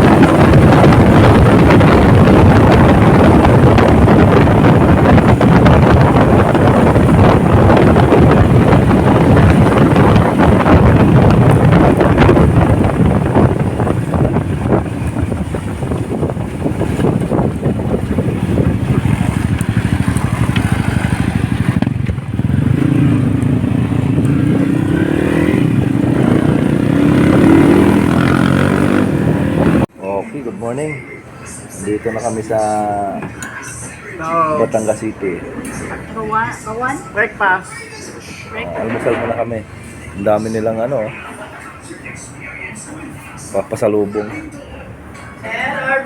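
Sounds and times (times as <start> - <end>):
motorcycle engine: 0.0 - 29.9
wind rushing over microphone: 0.0 - 29.9.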